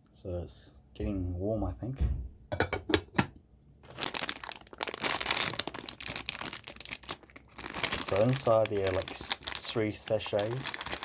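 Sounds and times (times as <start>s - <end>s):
plastic packet crinkling: 3.8s - 11.0s.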